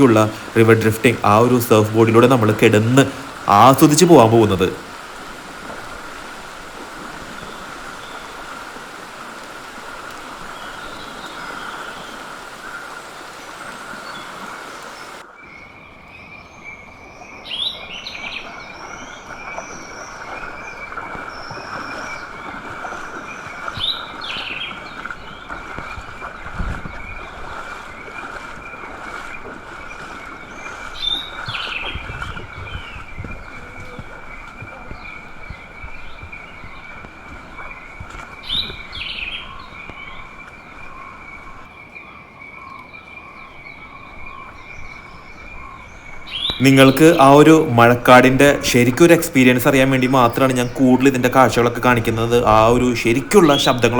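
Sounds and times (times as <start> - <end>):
birds calling in short bursts: 0.0 - 15.2, 44.7 - 53.9.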